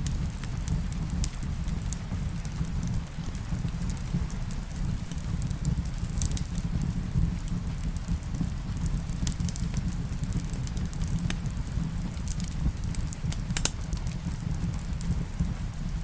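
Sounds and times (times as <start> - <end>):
rain: 0.0 - 16.0
wood fire crackling: 0.0 - 16.0.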